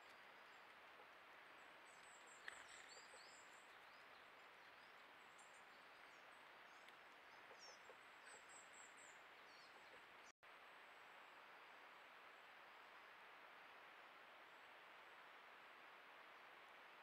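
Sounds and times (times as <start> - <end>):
small birds chirping: 0.0 - 10.3.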